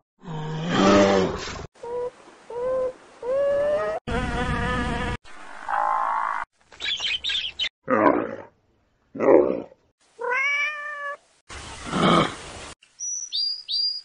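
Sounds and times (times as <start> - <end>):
rising animal calls: 1.8 - 5.1
buzzing animal call: 2.5 - 6.4.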